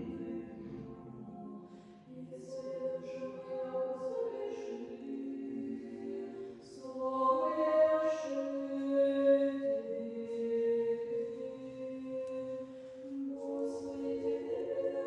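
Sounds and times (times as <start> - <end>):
women's choir singing chant: 0.0 - 15.0.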